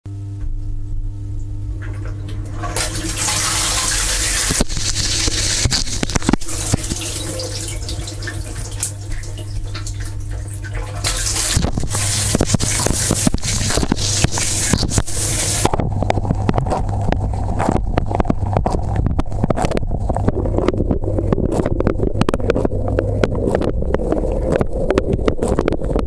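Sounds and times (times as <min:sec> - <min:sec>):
wash pump motor hum: 0:00.4 - 0:26.0
water spraying in dishwasher: 0:01.8 - 0:16.9.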